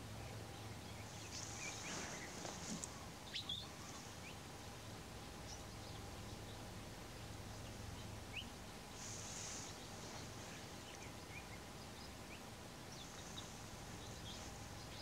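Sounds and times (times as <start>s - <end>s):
steady low hum: 0.0s - 15.0s
birds chirping and whistling: 1.0s - 2.6s, 3.3s - 4.4s.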